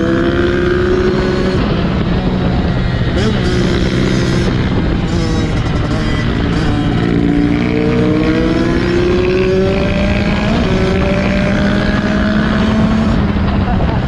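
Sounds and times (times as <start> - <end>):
dirt bike engine accelerating: 0.0 - 14.0
wind on microphone: 0.0 - 14.0.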